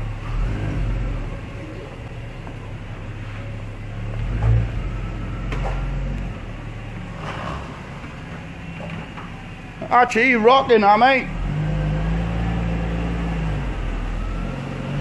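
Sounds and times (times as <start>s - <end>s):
car engine running at low revs: 0.0s - 15.0s.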